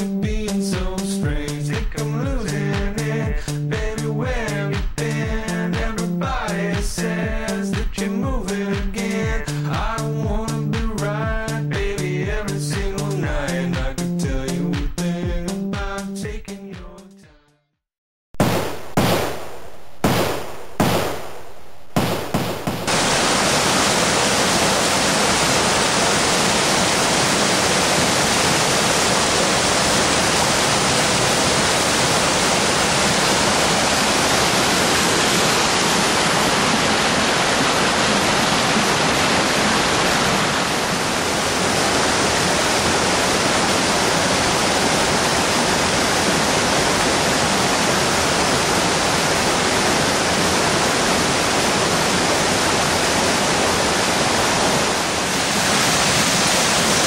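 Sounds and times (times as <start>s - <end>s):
waterfall rushing: 22.6s - 57.0s.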